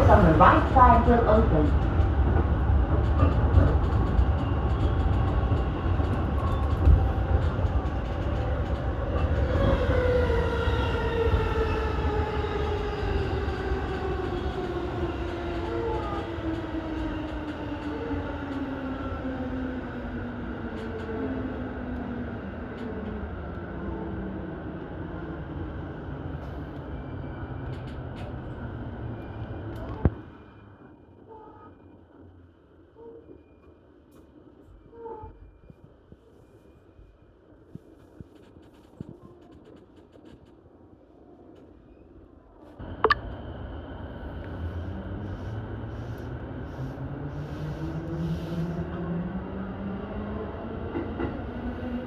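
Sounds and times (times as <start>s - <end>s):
train wheels rumbling on rail: 0.0s - 30.3s, 42.8s - 52.0s.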